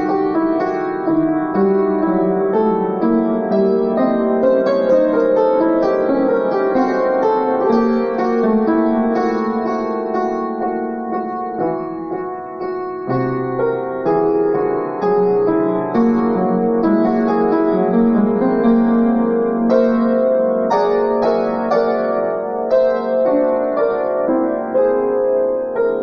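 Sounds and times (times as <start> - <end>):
solo piano improvisation: 0.0 - 26.0.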